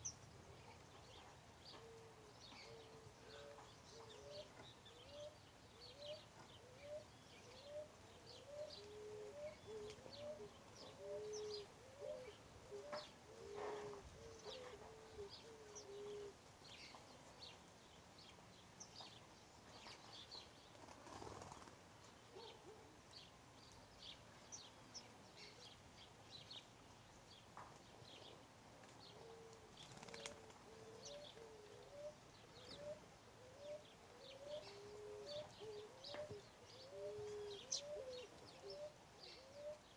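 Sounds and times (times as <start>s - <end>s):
small birds chirping: 0.0s - 39.9s
dove cooing: 1.8s - 16.4s, 22.3s - 22.9s, 29.1s - 39.9s.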